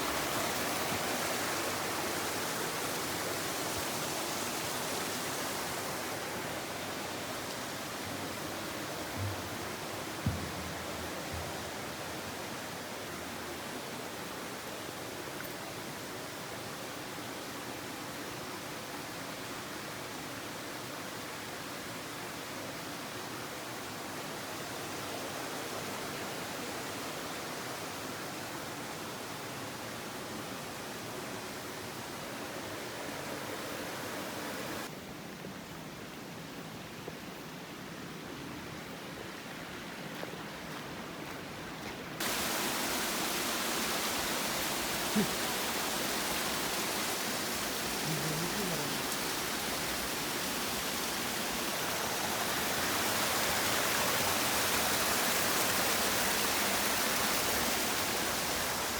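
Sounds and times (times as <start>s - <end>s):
waterfall rushing water: 0.0s - 58.9s.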